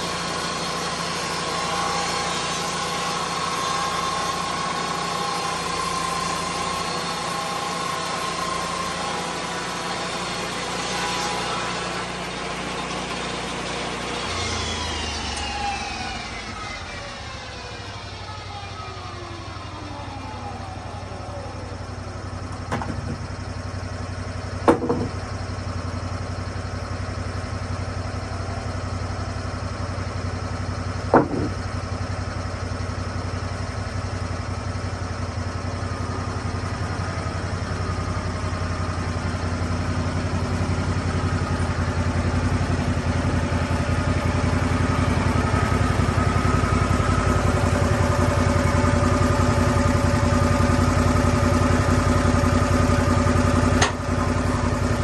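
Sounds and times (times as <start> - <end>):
sawmill engine running: 0.0 - 55.0
sharp knocks: 22.7 - 23.2, 24.6 - 25.2, 31.1 - 31.7.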